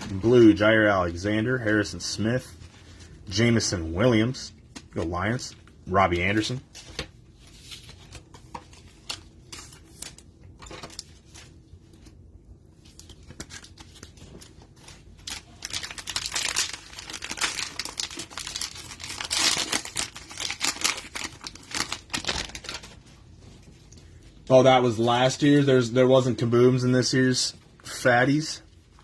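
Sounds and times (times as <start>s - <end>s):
cellophane wrapper crinkling: 12.8s - 23.2s.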